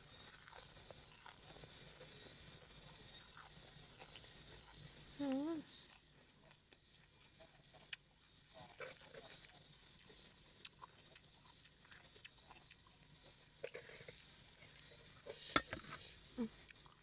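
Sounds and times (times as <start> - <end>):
person chewing food: 0.2 - 5.0, 5.8 - 17.0.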